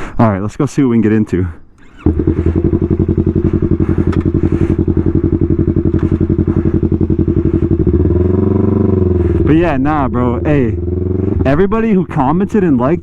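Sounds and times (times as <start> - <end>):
motorcycle engine pulsing: 1.8 - 13.0.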